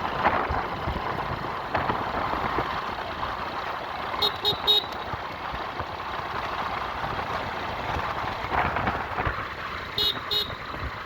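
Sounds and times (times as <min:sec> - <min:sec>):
road traffic noise: 0:00.0 - 0:11.0
vehicle horn beeps: 0:04.2 - 0:05.0, 0:10.0 - 0:10.6.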